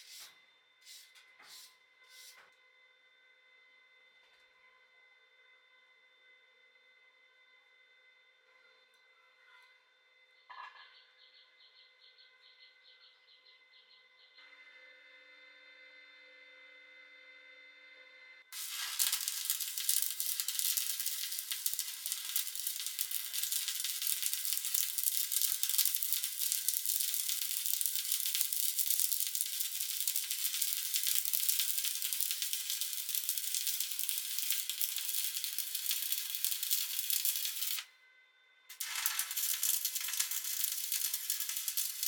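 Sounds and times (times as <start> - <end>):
welding arc crackling: 18.5 - 37.9, 38.7 - 42.0.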